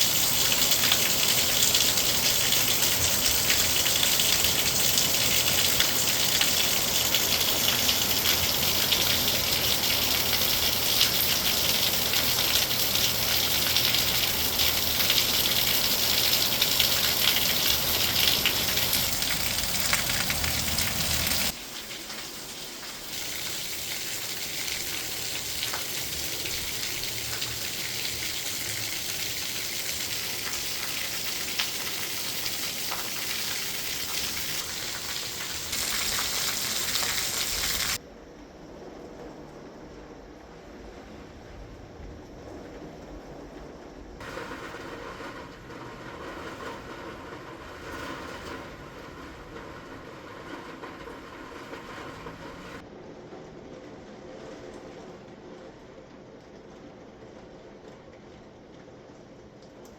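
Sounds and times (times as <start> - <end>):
heavy rain hissing: 0.0 - 38.0, 44.2 - 52.8.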